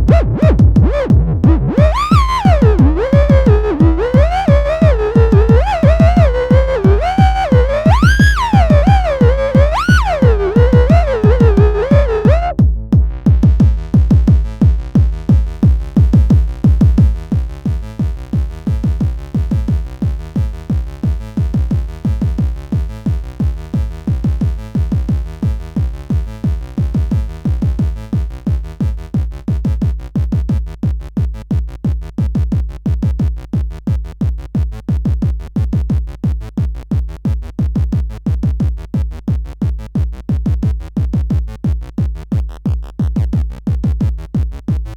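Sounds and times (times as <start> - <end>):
gliding synth tone: 0.0 - 12.6
repeating low bass pulse: 0.0 - 29.8.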